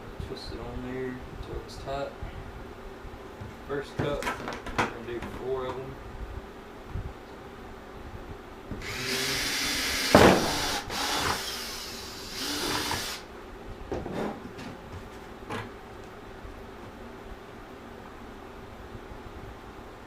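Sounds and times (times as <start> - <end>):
power drill boring through plastic: 8.8 - 13.2.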